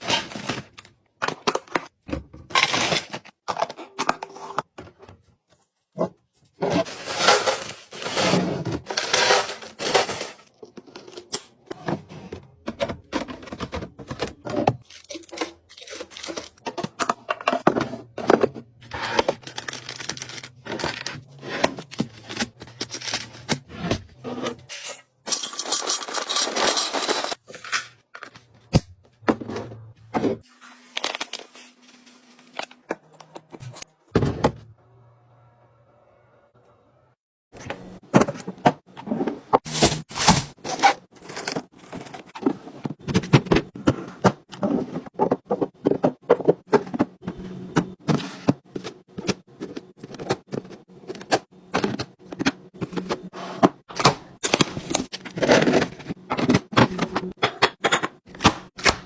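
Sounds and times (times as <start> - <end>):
items set down clicking and knocking: 37.7 - 40.6
packaging rustling and crinkling: 39.7 - 40.8.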